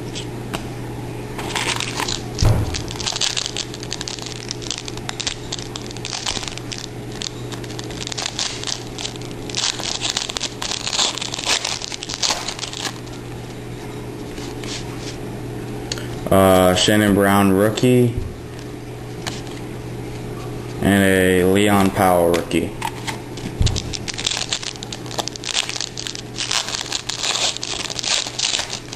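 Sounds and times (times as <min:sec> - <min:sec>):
card pack wrapper crinkling: 0:01.4 - 0:13.6, 0:18.5 - 0:19.7, 0:22.8 - 0:28.9
thump: 0:02.4 - 0:02.9.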